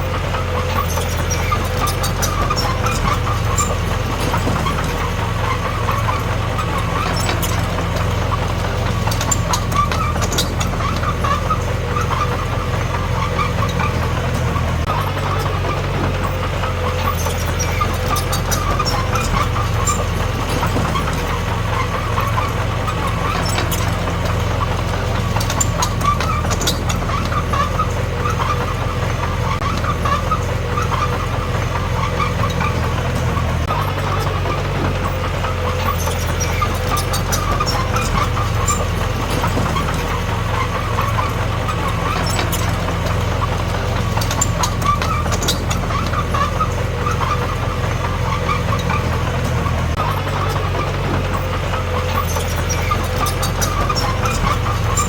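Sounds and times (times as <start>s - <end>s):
heavy diesel engine running: 0.0s - 55.0s
sharp metallic clicks and clanks: 0.0s - 55.0s.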